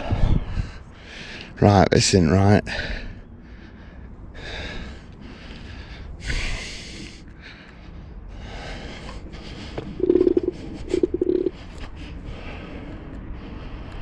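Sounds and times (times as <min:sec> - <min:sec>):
person breathing: 0:02.7 - 0:14.0.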